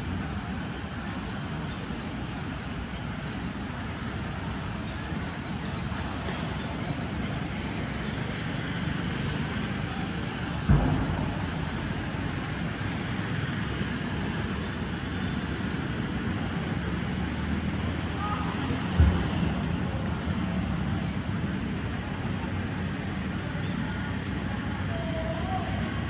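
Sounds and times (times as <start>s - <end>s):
steady rumbling background noise: 0.0s - 26.0s
sudden thump: 10.6s - 13.3s.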